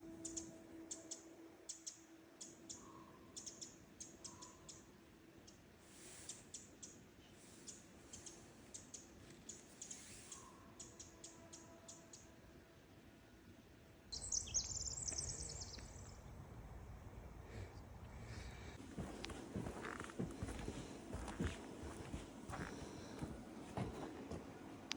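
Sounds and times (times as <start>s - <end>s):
small birds chirping: 0.0s - 12.4s, 14.1s - 16.4s.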